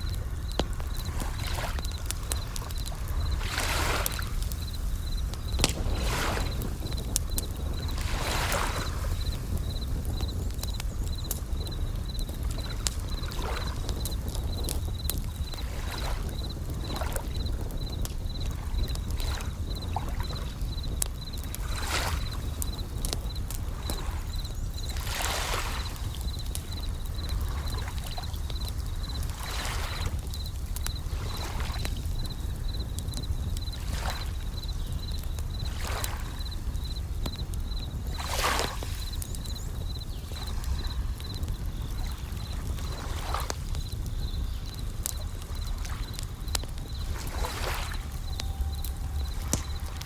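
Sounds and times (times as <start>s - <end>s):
waves washing in: 0.0s - 9.8s
campfire crackling: 0.0s - 50.0s
crickets chirping in trills: 0.0s - 50.0s.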